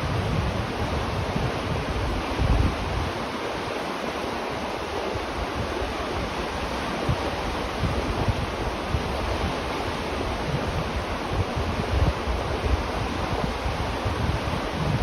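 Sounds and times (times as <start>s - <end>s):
river water flowing: 0.0s - 15.0s.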